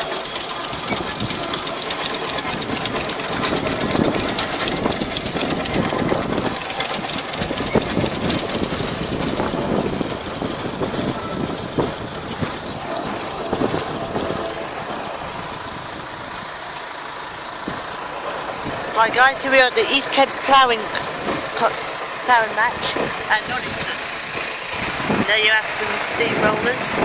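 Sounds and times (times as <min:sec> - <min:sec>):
mechanical clatter and clanks: 0:00.0 - 0:27.0
steam engine running: 0:00.0 - 0:27.0.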